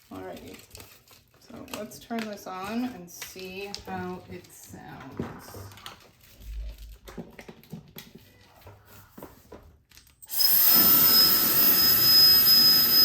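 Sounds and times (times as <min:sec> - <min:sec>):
hair dryer running: 0:10.3 - 0:13.0.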